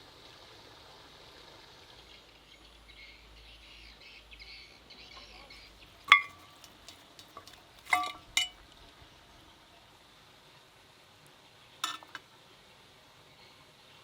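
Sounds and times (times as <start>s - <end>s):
metal utensil clinking: 6.1s - 8.6s, 11.8s - 12.2s
utensil scraping cookware: 6.1s - 8.6s, 11.8s - 12.2s.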